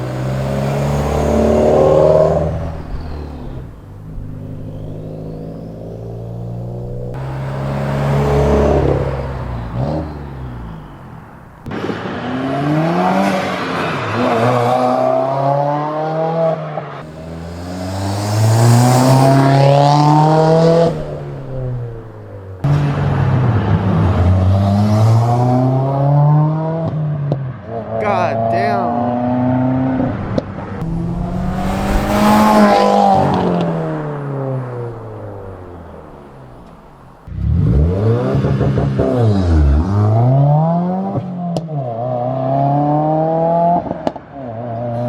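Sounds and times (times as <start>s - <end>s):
car engine revving through exhaust: 0.0s - 45.0s.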